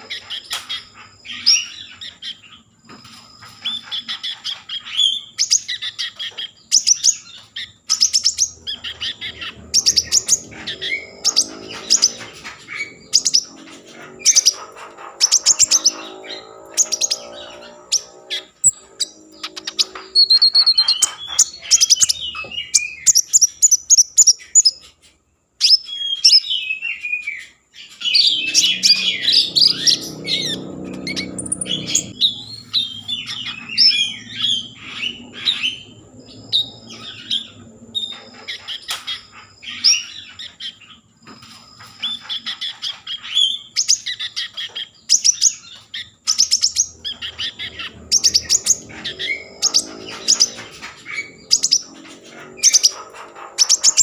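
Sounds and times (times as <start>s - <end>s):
songbird chirping and trilling: 0.0s - 54.0s.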